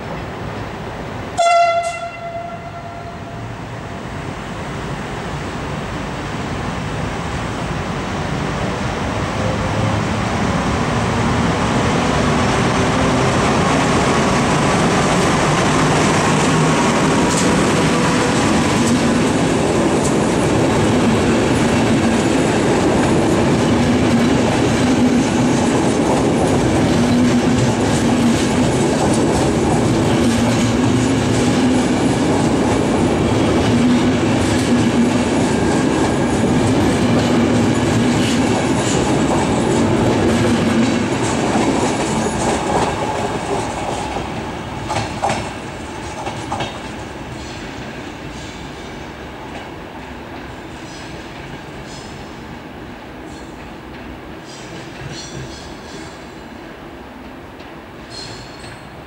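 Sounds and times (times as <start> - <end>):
train rumbling past: 0.0 - 59.0
wheels clacking over rail joints: 12.1 - 48.6.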